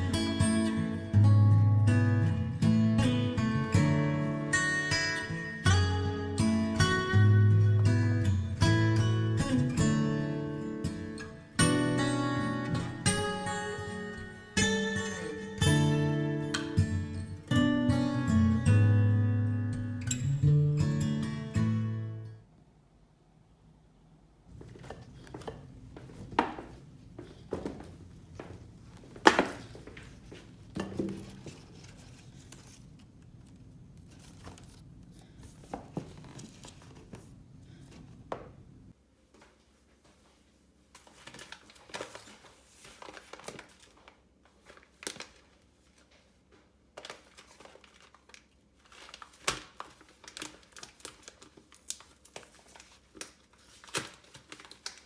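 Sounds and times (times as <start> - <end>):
crinkling and rustling: 24.5 - 38.3, 39.2 - 55.0.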